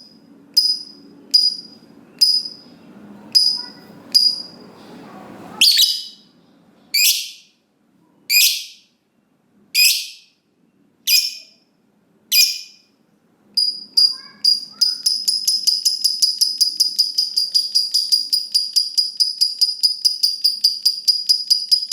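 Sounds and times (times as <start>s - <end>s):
lovebird chattering trill: 3.4s - 4.6s, 5.6s - 6.3s, 7.0s - 7.5s, 8.3s - 8.8s, 9.8s - 10.3s, 11.1s - 11.6s, 12.3s - 12.8s, 13.6s - 21.9s
lovebird harsh calls: 5.6s - 6.3s, 11.1s - 11.6s, 12.3s - 12.8s.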